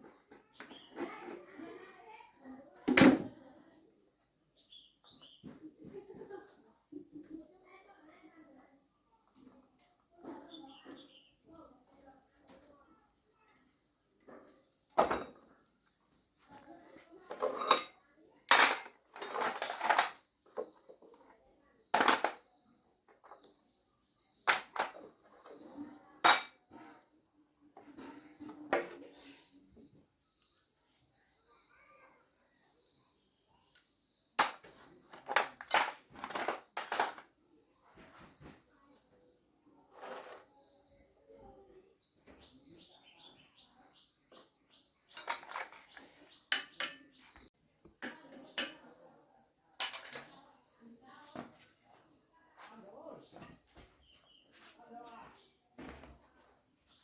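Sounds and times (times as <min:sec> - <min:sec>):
metal objects clinking: 0:17.3 - 0:20.2, 0:21.9 - 0:22.4, 0:24.5 - 0:25.1, 0:26.2 - 0:26.6, 0:34.4 - 0:37.2, 0:45.1 - 0:47.2.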